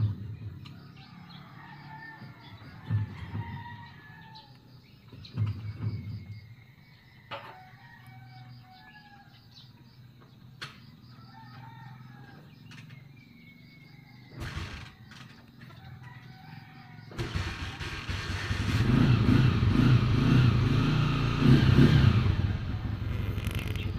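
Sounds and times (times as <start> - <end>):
loud rough rumbling: 17.2 - 23.9
faint bird chirps: 23.1 - 23.9.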